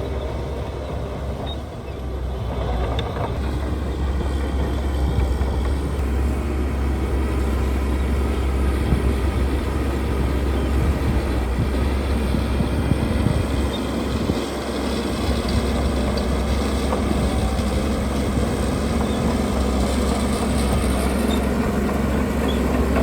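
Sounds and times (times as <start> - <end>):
heavy diesel engine droning: 0.0 - 23.0.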